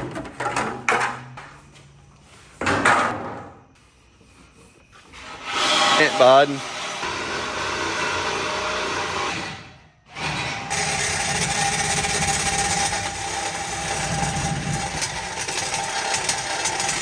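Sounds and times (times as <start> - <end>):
power saw cutting metal pipe: 5.1 - 17.0.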